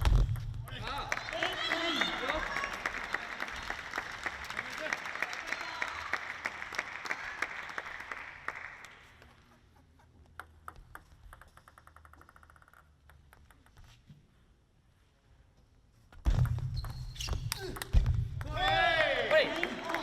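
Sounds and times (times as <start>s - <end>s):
table tennis ball bouncing: 0.0s - 1.2s, 9.5s - 14.1s, 16.2s - 19.0s
crowd applause: 0.8s - 9.2s, 18.6s - 20.0s.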